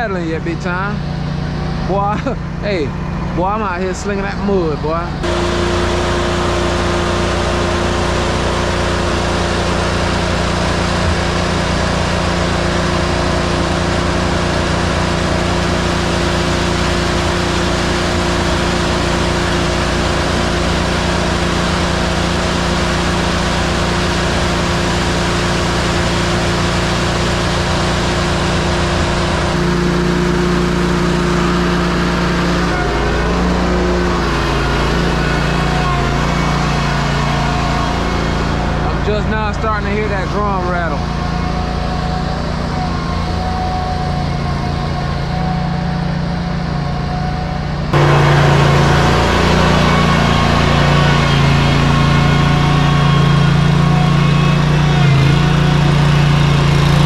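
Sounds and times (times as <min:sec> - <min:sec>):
truck engine running: 0:00.0 - 0:57.0
mixer drum turning: 0:05.2 - 0:32.7, 0:47.9 - 0:57.0.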